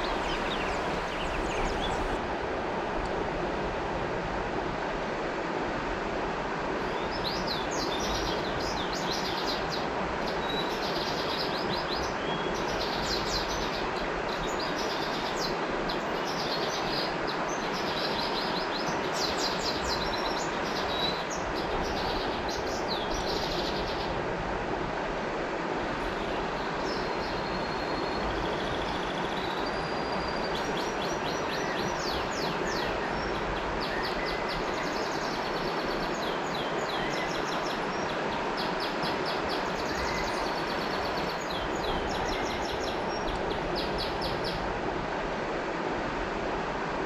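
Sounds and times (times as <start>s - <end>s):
birds chirping: 0.0s - 2.2s
river water flowing: 0.0s - 47.0s.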